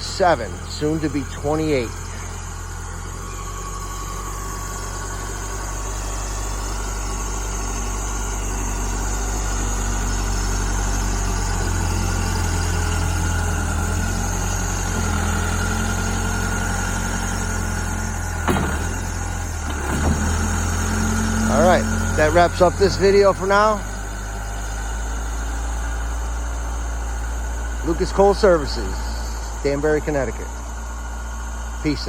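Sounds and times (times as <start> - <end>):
high-pitched whine: 0.0 - 13.1
backhoe engine running: 0.0 - 32.0.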